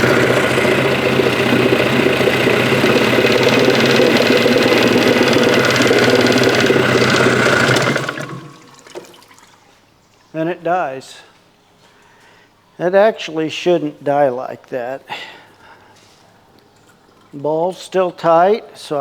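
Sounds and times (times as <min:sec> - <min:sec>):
outboard motor idling: 0:00.0 - 0:09.0.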